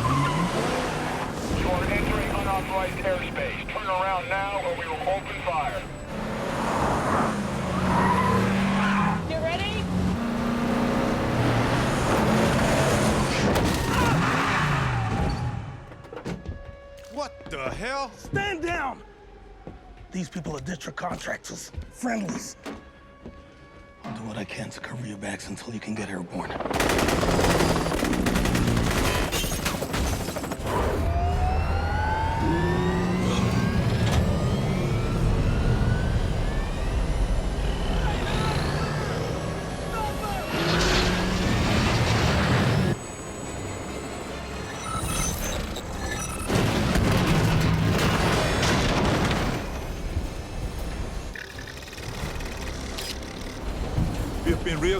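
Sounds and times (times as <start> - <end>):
road and tyre noise: 0.0 - 18.3, 30.6 - 54.9
vehicle engine accelerating: 5.8 - 13.5, 31.4 - 45.9
rapid gunfire: 26.6 - 30.8.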